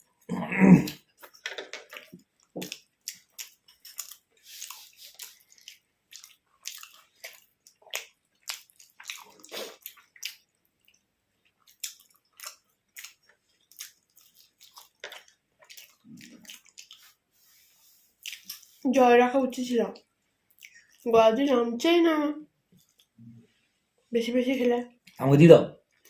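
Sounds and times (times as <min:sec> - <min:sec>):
chewing with lip smacks: 0:00.9 - 0:17.2, 0:18.2 - 0:18.8, 0:20.0 - 0:21.1
person speaking: 0:24.1 - 0:25.8.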